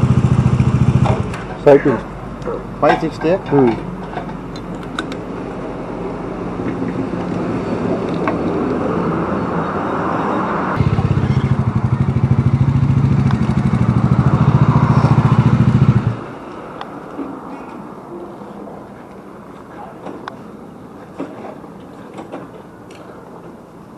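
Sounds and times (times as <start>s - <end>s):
motorcycle engine running: 0.0s - 2.2s, 10.8s - 16.2s
steady background noise: 0.0s - 23.9s.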